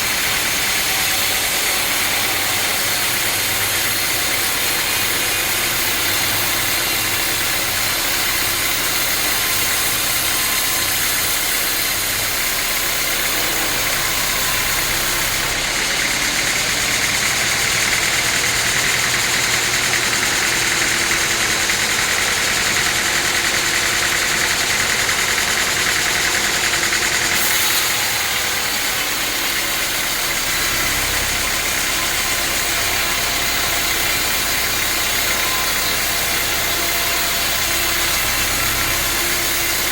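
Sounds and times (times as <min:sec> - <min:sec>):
sawmill saw cutting log: 0:00.0 - 0:39.9.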